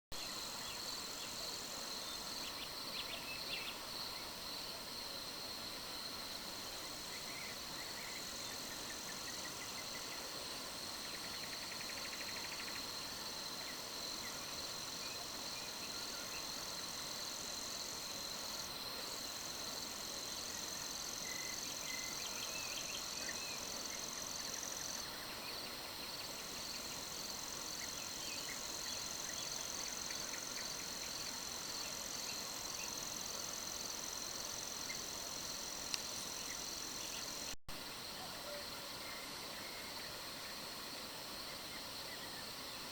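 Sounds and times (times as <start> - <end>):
insects chirring: 0.1 - 42.9.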